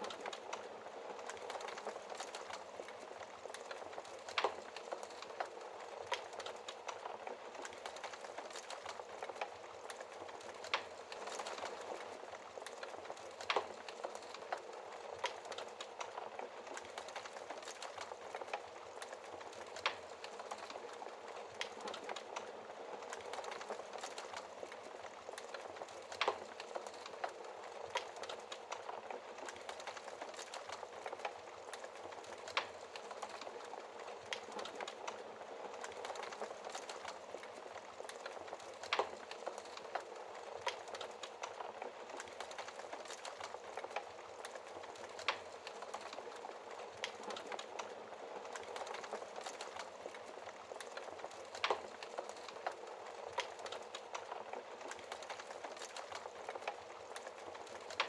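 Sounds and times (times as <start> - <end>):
fire popping: 0.0 - 58.0
wood fire crackling: 0.0 - 58.0.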